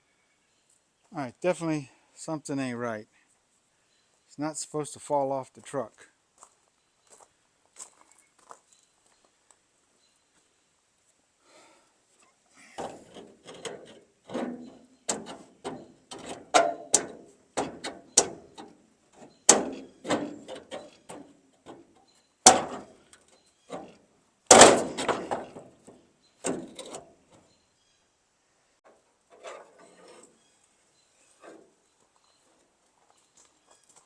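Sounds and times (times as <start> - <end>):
steel tailgate knocking and clanking: 12.8 - 18.8, 19.4 - 21.9, 22.5 - 22.9, 24.5 - 27.0.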